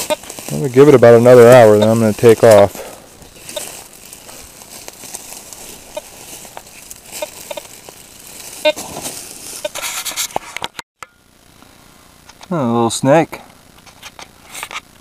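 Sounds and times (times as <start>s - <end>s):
metal detector beeps: 0.0s - 0.4s, 1.4s - 2.1s, 3.4s - 3.8s, 5.9s - 6.2s, 7.1s - 7.7s, 8.6s - 8.9s, 9.6s - 9.8s
faint outdoor hiss: 0.0s - 15.0s.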